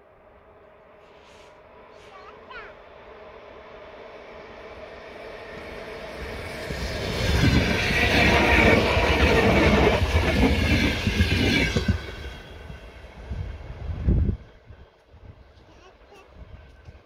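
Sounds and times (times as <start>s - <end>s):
train wheels rumbling and clattering: 4.4s - 17.0s.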